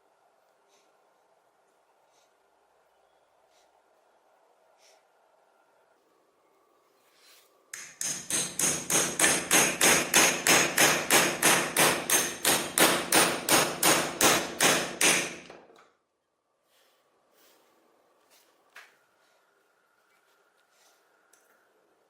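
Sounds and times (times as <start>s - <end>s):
hammer striking metal: 7.8s - 15.5s.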